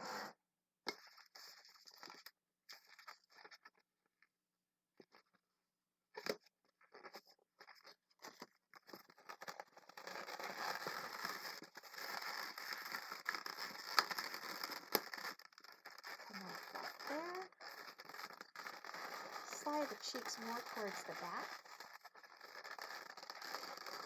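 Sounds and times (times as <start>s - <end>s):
balloons clicking and scraping: 6.2s - 24.0s
balloons rubbing and crinkling: 7.6s - 24.0s.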